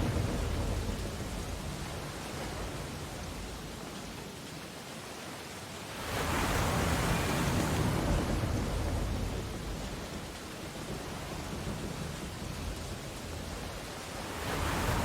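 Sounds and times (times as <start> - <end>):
ocean wave breaking on shore: 0.0 - 3.3, 5.9 - 12.4, 14.0 - 15.0
surf hiss: 0.0 - 15.0.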